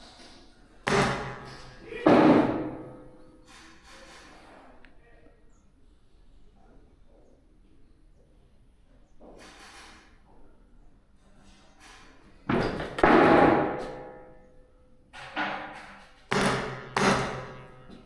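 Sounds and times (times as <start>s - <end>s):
loud ringing impacts: 0.9s - 3.3s, 16.3s - 18.0s.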